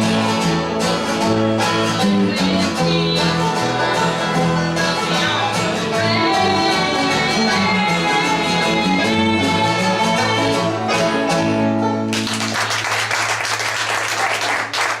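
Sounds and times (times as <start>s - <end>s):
acoustic string band playing: 0.0s - 12.8s
audience applause: 12.1s - 15.0s.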